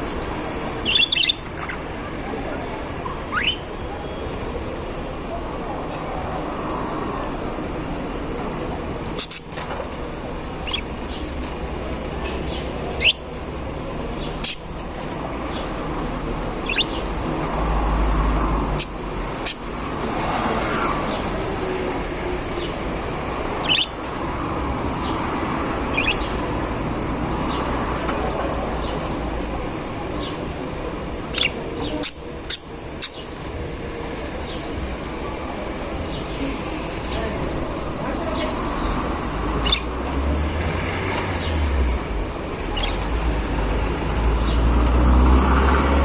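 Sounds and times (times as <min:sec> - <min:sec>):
budgerigars chirping: 0:00.0 - 0:02.0, 0:03.2 - 0:03.7, 0:09.1 - 0:09.8, 0:10.6 - 0:11.3, 0:12.4 - 0:13.3, 0:14.0 - 0:15.8, 0:16.6 - 0:17.3, 0:18.7 - 0:19.7, 0:23.6 - 0:24.3, 0:24.9 - 0:26.6, 0:31.3 - 0:33.5, 0:39.6 - 0:39.9, 0:42.7 - 0:43.1.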